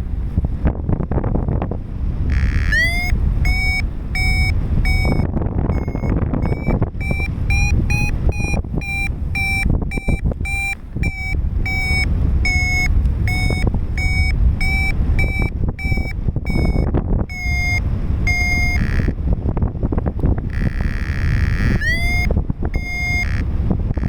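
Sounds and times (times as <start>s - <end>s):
wind rushing over microphone: 0.0s - 24.0s
variometer short beeps: 2.3s - 19.2s, 20.3s - 24.0s.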